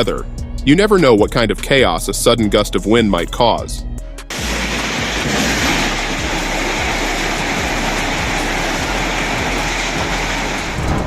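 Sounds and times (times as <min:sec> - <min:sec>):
strong wind rushing: 0:04.3 - 0:11.0.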